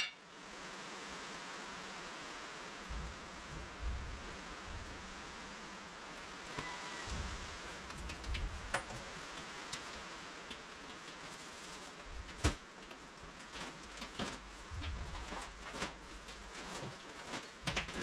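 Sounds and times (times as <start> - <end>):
rain hissing: 0.5 - 12.5
low rumbling bumps: 14.6 - 16.5.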